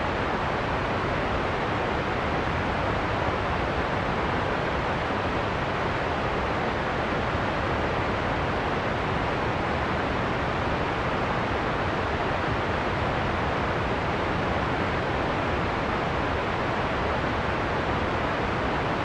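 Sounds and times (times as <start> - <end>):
heavy rain and wind storm: 0.0 - 19.0.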